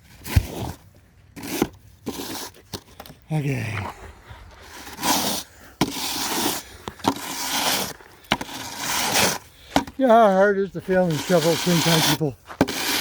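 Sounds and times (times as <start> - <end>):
snow shovel scraping slush: 0.1 - 0.8, 1.4 - 2.6, 4.6 - 13.0.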